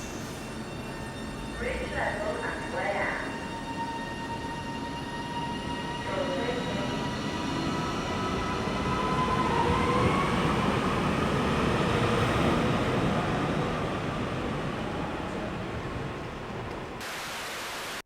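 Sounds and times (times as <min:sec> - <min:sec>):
train rumbling: 0:00.0 - 0:17.0
high train whine: 0:00.0 - 0:17.9.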